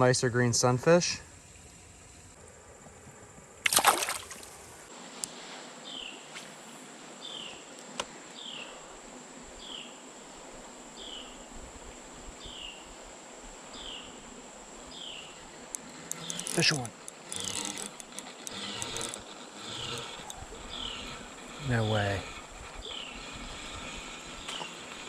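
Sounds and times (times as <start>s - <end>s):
creek ambience: 0.0s - 25.0s
splash in creek water: 3.6s - 4.9s.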